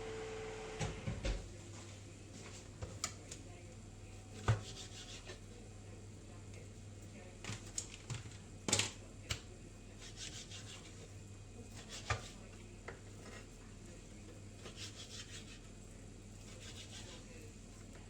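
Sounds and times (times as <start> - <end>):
knife scraping on chopping board: 4.4 - 5.4, 10.0 - 11.0, 11.7 - 13.6, 14.6 - 15.7, 16.4 - 17.3.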